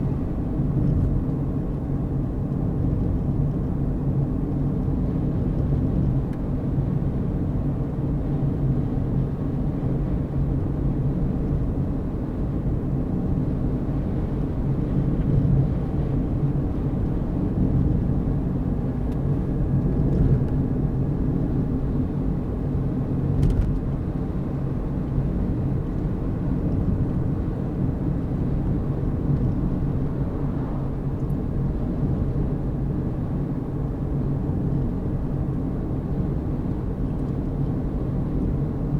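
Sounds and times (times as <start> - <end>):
car engine hum: 0.0 - 38.9
road noise: 13.2 - 38.9.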